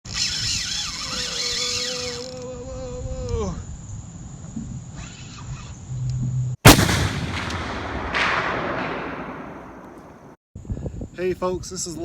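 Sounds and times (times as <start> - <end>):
loud boom with rumble: 6.6 - 10.3.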